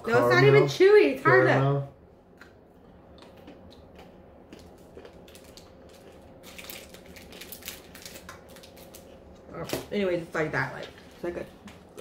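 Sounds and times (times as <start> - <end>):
caramel crunched between teeth: 4.6 - 9.8.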